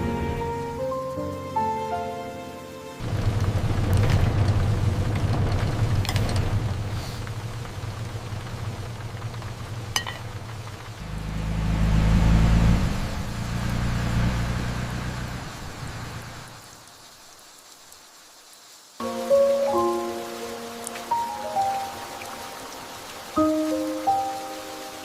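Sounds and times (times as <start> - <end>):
soft music: 0.0 - 3.0, 19.0 - 25.0
vehicle engine rumbling: 3.0 - 16.9.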